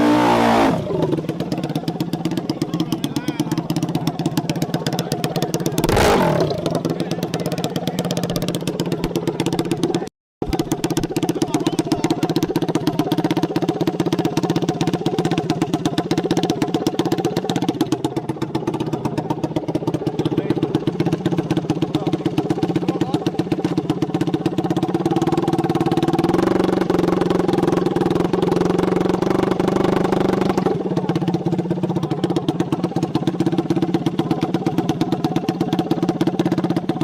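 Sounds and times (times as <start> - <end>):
dirt bike engine running: 0.0 - 37.0.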